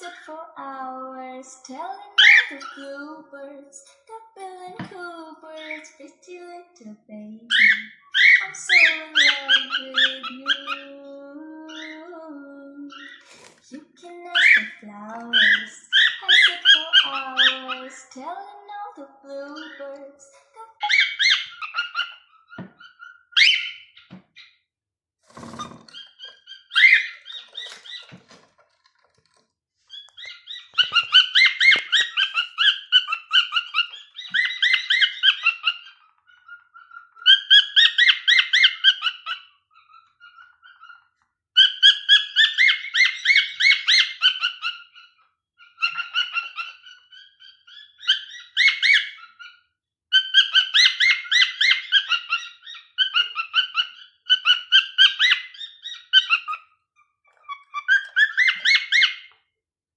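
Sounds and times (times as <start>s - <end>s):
cockatiel warbling: 2.2s - 2.8s, 7.5s - 10.9s, 14.3s - 17.9s, 20.8s - 24.5s, 25.3s - 28.4s, 29.9s - 56.7s, 57.3s - 59.3s.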